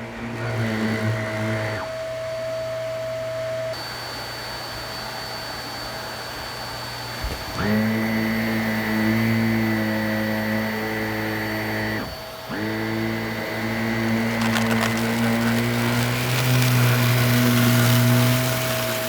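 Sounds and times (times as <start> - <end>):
vacuum cleaner motor hum: 0.0 - 19.0
debris crackling in vacuum: 14.0 - 19.0.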